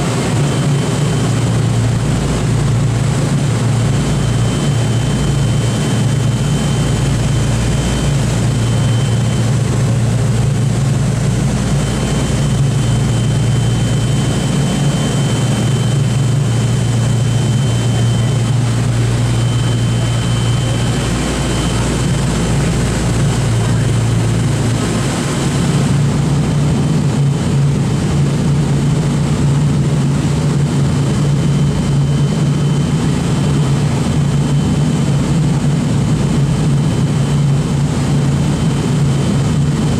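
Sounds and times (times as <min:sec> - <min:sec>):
propeller engines droning: 0:00.0 - 0:39.9.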